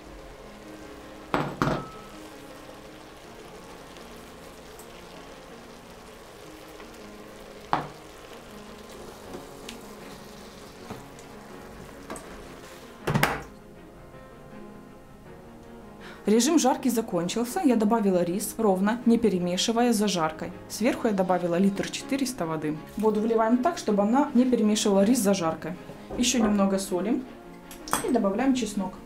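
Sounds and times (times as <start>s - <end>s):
meat sizzling in oil: 0.0s - 13.1s.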